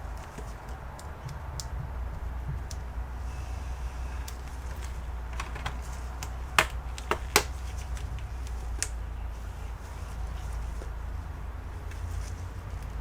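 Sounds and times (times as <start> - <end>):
clicks and taps of tools: 4.3 - 9.0.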